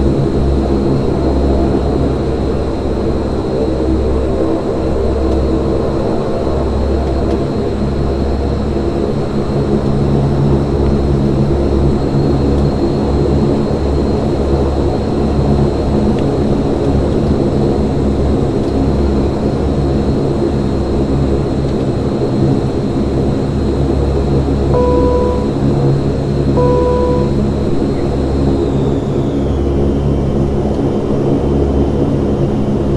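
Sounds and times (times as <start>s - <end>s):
thin high whine: 24.8s - 25.6s, 26.6s - 27.6s.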